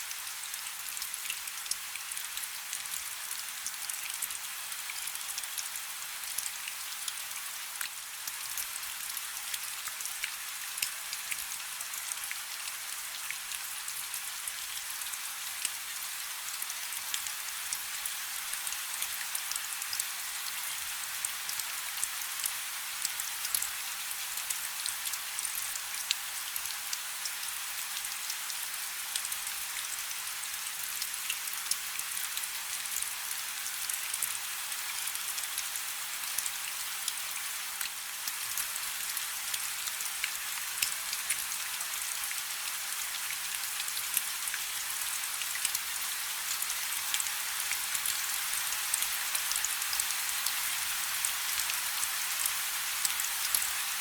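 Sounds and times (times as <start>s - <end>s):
light rain falling: 0.0s - 54.0s.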